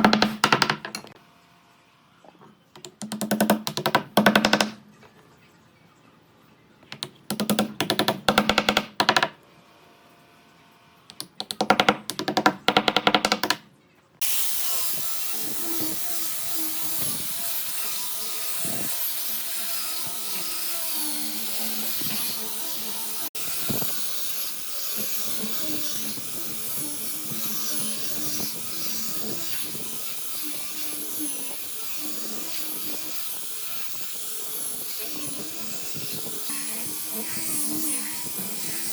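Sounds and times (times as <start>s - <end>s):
power tool running with hiss: 14.2s - 38.9s.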